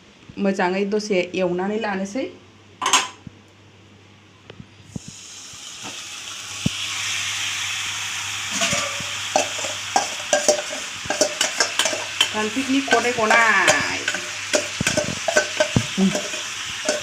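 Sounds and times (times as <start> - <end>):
chicken sizzling in hot oil: 4.9 - 17.0
spoon scraping a pan: 8.5 - 17.0.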